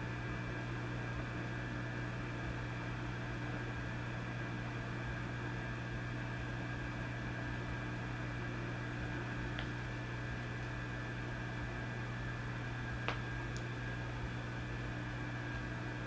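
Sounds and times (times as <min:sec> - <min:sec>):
mains hum: 0:00.0 - 0:16.0.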